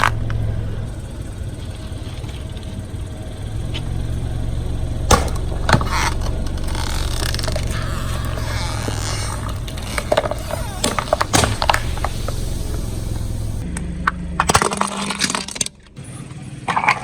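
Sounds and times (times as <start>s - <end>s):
car engine hum: 0.0s - 17.0s
tyre crushing brittle objects: 3.5s - 13.6s.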